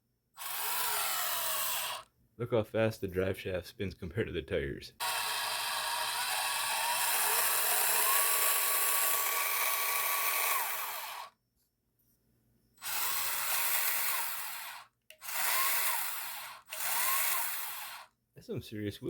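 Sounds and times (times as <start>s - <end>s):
electric motor whining: 0.4s - 2.0s, 5.0s - 11.3s, 12.8s - 18.1s.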